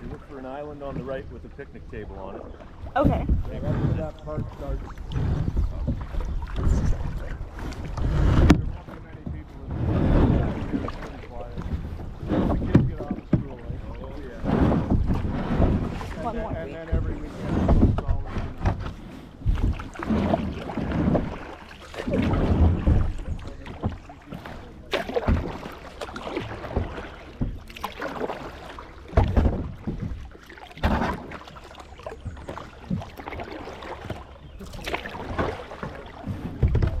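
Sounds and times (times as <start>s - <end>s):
wind buffeting microphone: 0.0s - 25.7s, 34.0s - 37.0s
paddle splashing in water: 0.0s - 37.0s.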